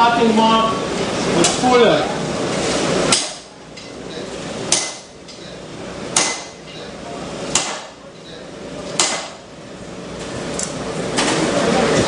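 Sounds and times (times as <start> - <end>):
hammer striking hot steel on anvil: 3.1 - 4.0, 4.7 - 5.4, 6.1 - 6.8, 7.5 - 8.0, 9.0 - 9.4.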